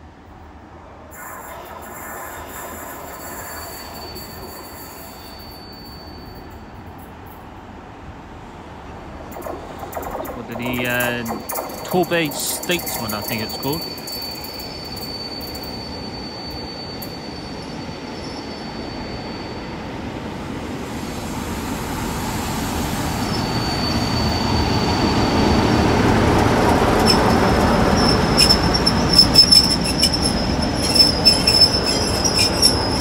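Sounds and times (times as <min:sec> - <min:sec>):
train wheels squealing on rails: 0:01.0 - 0:08.0, 0:09.2 - 0:33.0
train wheel clicks: 0:26.3 - 0:33.0.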